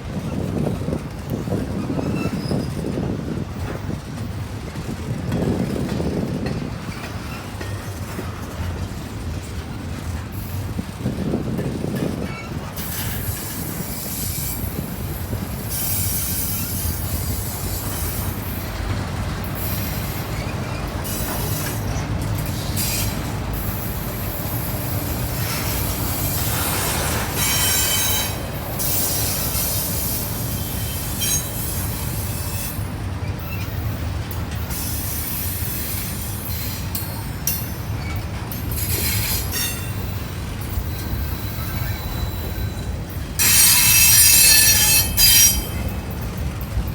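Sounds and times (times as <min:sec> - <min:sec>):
freight train rumbling on rails: 0:00.0 - 0:46.9
high-pitched wheel squeals: 0:19.7 - 0:32.9, 0:38.8 - 0:45.9.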